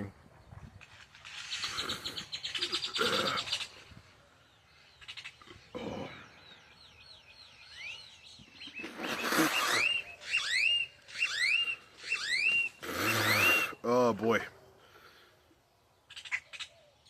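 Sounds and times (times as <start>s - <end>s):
bird whistling calls: 6.8s - 13.8s.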